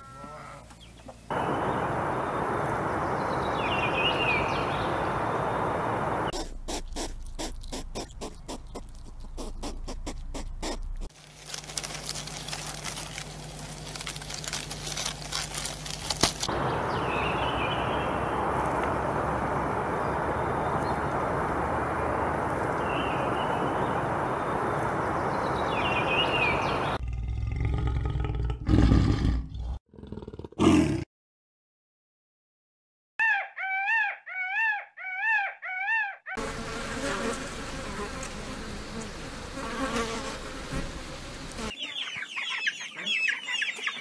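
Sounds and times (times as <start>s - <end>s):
steady rushing noise: 1.3s - 6.3s, 16.5s - 27.0s.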